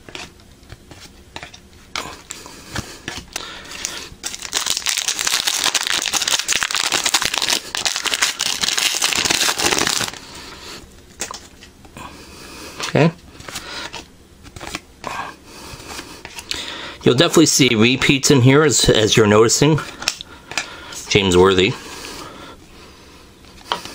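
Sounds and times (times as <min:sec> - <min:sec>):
wrapper crinkling: 0:03.4 - 0:10.2.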